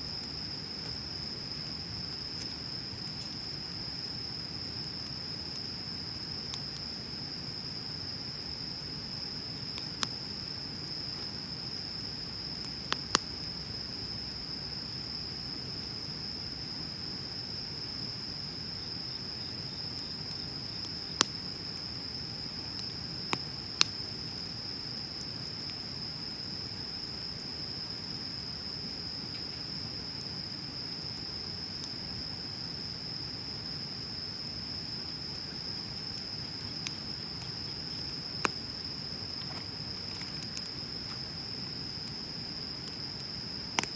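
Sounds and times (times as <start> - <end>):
bonfire burning rush: 0.0 - 14.9, 32.7 - 43.9
sharp crackling pops: 12.6 - 13.4, 20.3 - 21.5, 22.7 - 24.1, 36.1 - 43.9.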